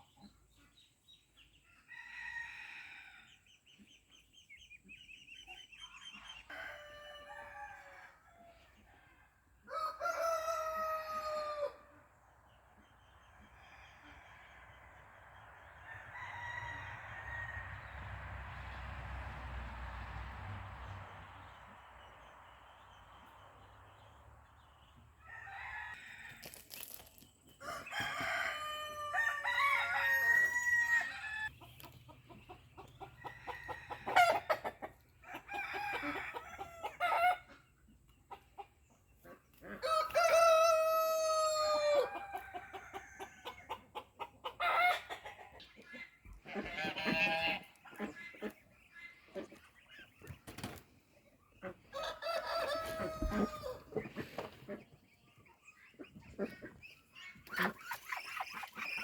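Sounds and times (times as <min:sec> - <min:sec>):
rooster crowing: 0:09.7 - 0:11.8, 0:15.8 - 0:17.9, 0:27.6 - 0:31.5, 0:39.8 - 0:43.1, 0:51.9 - 0:53.9
chickens clucking: 0:20.8 - 0:59.0.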